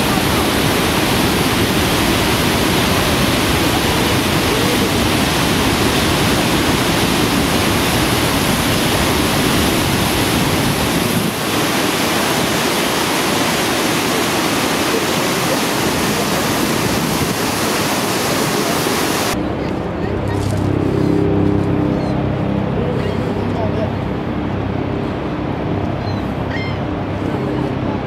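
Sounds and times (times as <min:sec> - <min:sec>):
waterfall rushing: 0:00.0 - 0:19.4.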